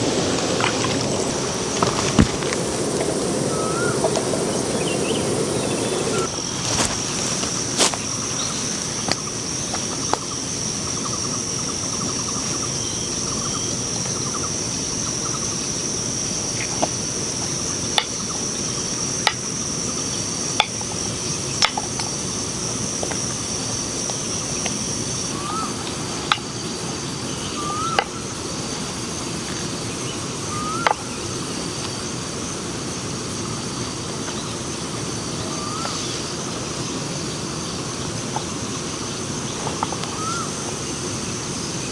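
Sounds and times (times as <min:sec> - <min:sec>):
rising bird chirps: 0:00.0 - 0:09.2
insect trill: 0:00.0 - 0:41.9.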